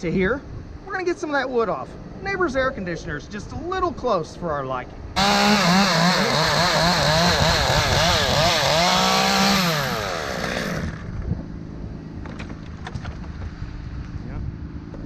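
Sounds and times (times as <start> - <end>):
chainsaw cutting wood: 5.2 - 11.2.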